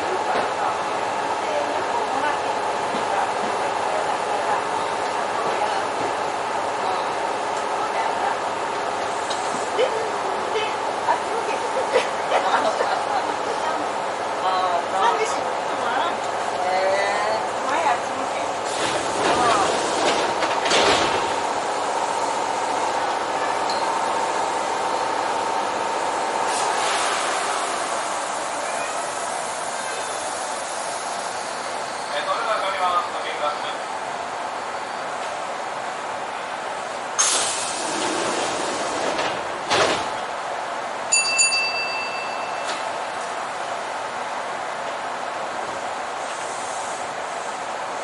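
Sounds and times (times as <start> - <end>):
train wheels rumbling on rail: 0.0 - 48.0
train whine: 12.5 - 48.0
train doors shutting thud: 18.6 - 21.5, 37.2 - 40.3, 42.6 - 43.0
pneumatic door air hiss: 26.5 - 28.2, 37.2 - 39.2, 46.2 - 47.1.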